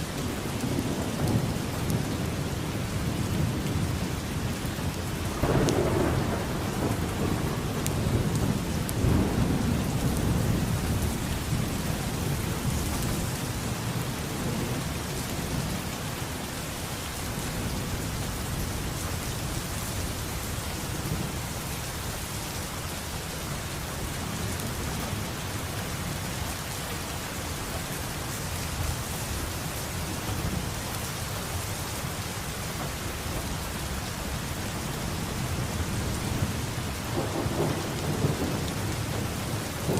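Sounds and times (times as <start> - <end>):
thunder rolling: 4.8 - 13.3, 35.5 - 39.9.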